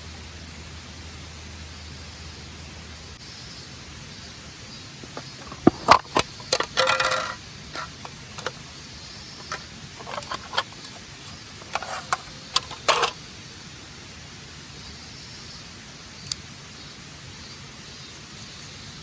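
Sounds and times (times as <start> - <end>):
steady hiss: 0.0 - 19.0
sharp clicks and knocks: 5.1 - 8.6, 9.4 - 13.2.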